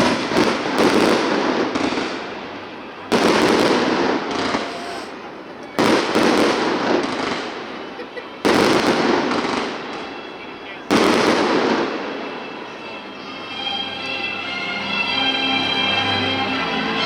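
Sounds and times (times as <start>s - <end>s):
fireworks booming: 0.0s - 10.2s, 10.8s - 12.4s
small firework cracks: 0.0s - 10.2s, 10.9s - 12.1s.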